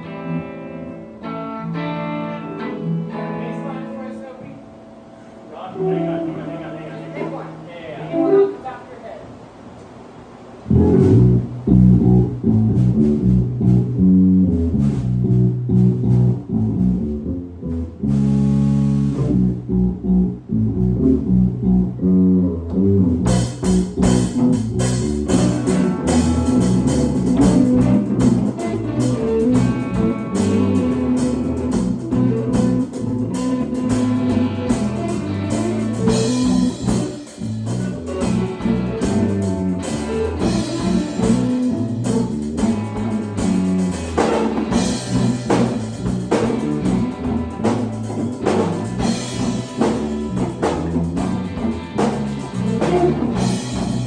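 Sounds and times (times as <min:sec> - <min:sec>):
electric guitar playing: 0:00.0 - 0:08.7, 0:10.7 - 0:54.0
drum kit: 0:10.7 - 0:21.7, 0:22.7 - 0:54.0
bass line: 0:10.7 - 0:54.0.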